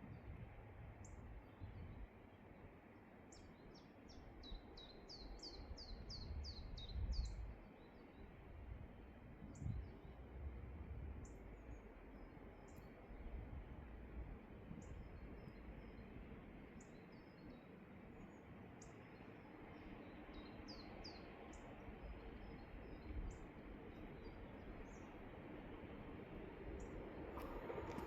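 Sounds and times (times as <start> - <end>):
small birds chirping: 26.7 - 28.0
falling bird whistles: 27.4 - 28.0.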